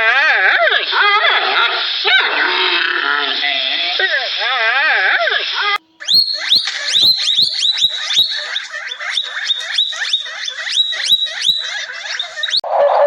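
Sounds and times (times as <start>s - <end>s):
animal chirping calls: 6.0s - 12.7s.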